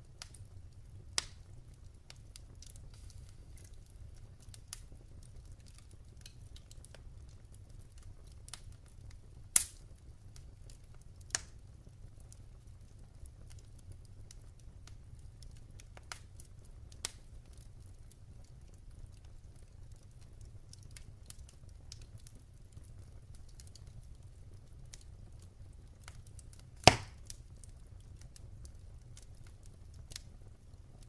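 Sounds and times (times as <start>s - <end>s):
wood fire crackling in fireplace: 0.0s - 31.0s.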